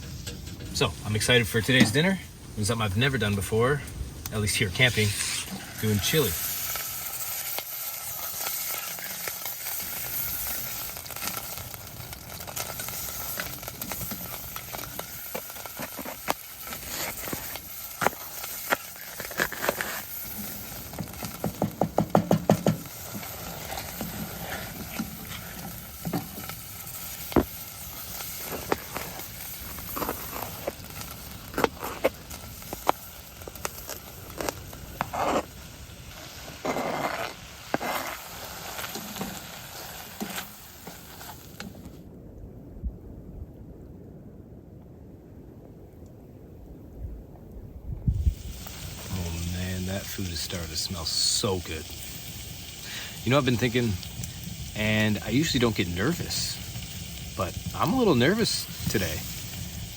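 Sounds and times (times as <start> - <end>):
meat sizzling in oil: 4.5 - 41.7, 48.1 - 59.9
utensil stirring and clicking on pot: 15.6 - 26.6.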